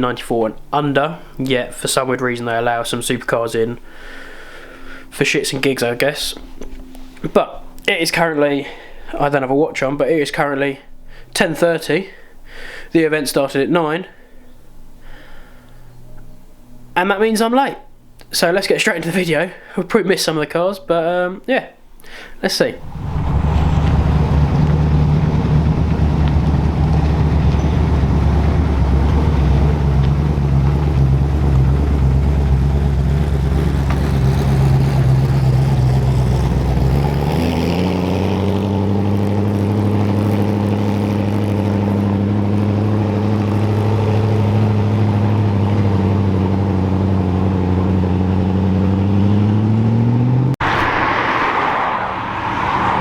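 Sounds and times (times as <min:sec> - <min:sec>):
car engine drone: 0:02.6 - 0:07.9, 0:22.6 - 0:53.0.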